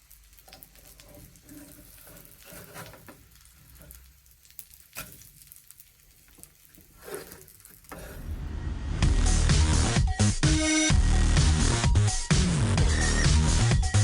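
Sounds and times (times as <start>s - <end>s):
chicken sizzling in a pan: 0.0s - 8.6s.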